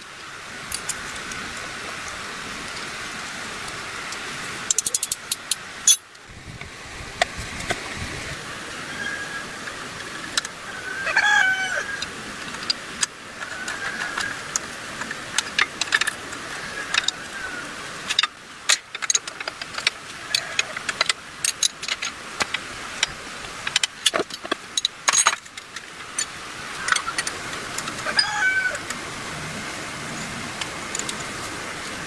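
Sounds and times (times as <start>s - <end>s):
metal tools clinking: 4.7s - 6.1s, 18.1s - 28.3s.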